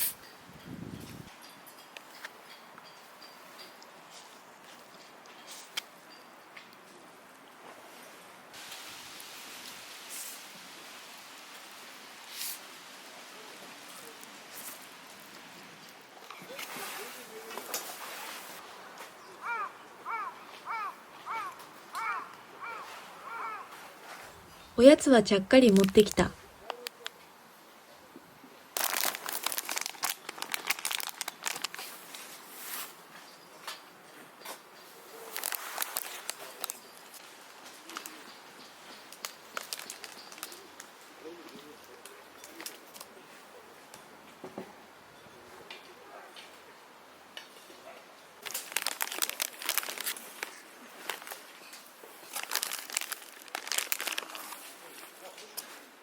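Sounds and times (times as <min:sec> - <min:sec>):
plastic wrapper crinkling and tearing: 0:28.8 - 0:32.3, 0:35.3 - 0:36.8, 0:39.1 - 0:40.9, 0:48.4 - 0:51.5, 0:52.2 - 0:54.9.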